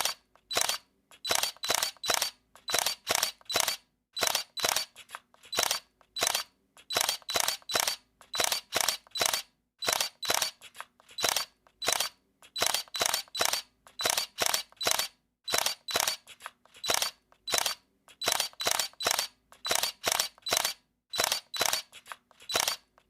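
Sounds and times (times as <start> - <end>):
camera shutter clicking: 0.0 - 22.9.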